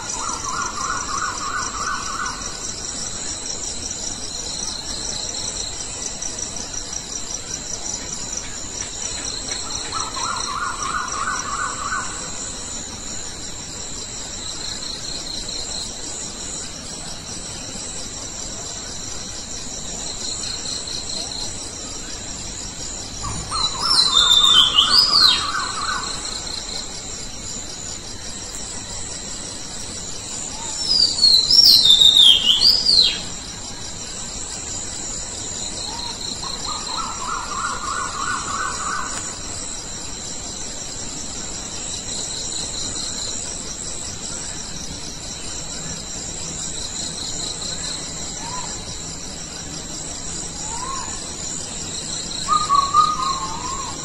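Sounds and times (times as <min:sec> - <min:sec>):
crickets chirping: 0:00.0 - 0:54.0
birds calling: 0:23.2 - 0:26.4
shrill gliding bird calls: 0:23.2 - 0:26.4, 0:30.5 - 0:33.3, 0:50.6 - 0:51.4, 0:52.4 - 0:54.0.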